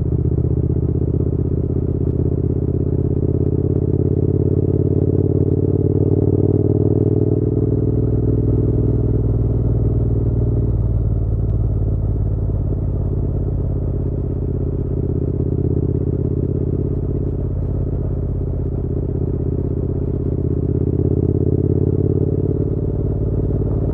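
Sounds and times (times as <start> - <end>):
motorcycle engine running: 0.0 - 23.9.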